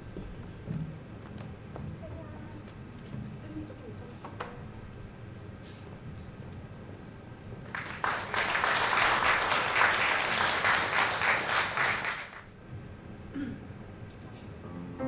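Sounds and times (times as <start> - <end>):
audience applauding: 7.7 - 12.5.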